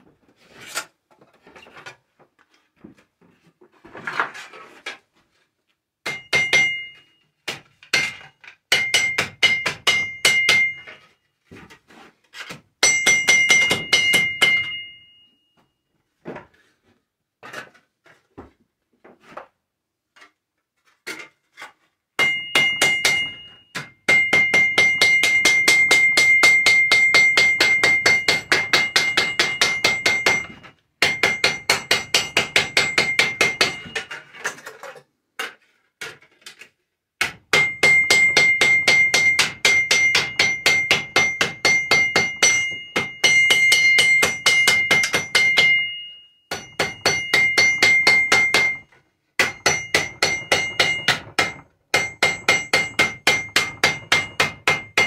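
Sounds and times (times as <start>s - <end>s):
hammer ringing on metal: 6.0s - 7.1s, 8.7s - 10.9s, 12.8s - 15.2s, 22.2s - 34.1s, 37.3s - 55.0s.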